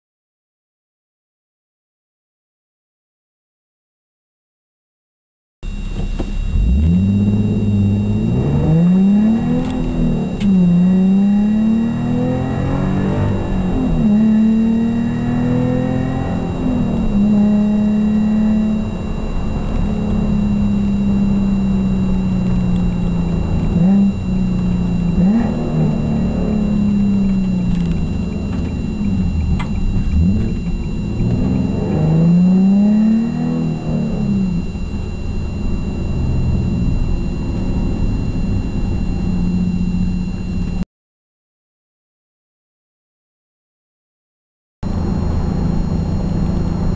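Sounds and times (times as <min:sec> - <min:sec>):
car engine drone from cabin: 0:05.6 - 0:40.8, 0:44.8 - 0:46.9.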